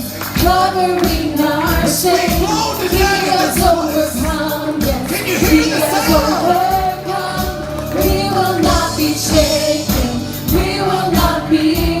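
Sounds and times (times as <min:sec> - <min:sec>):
voices singing together: 0:00.2 - 0:12.0
steady drum beat: 0:01.2 - 0:10.2.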